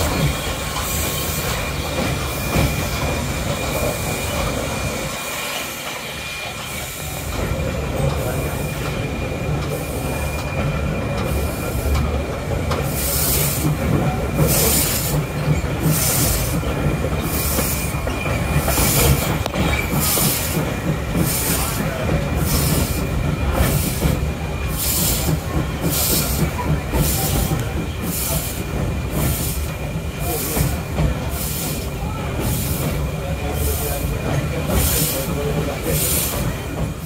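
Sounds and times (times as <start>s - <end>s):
train rumbling: 0.0s - 37.0s.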